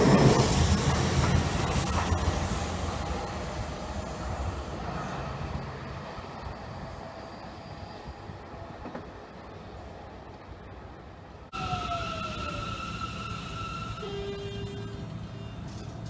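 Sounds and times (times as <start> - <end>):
electric train running on track: 0.0 - 16.0.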